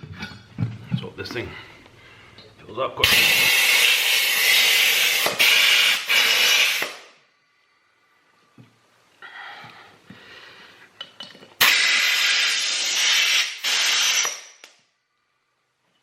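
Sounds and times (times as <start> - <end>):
compressed air hissing: 3.0 - 7.0, 11.6 - 14.6.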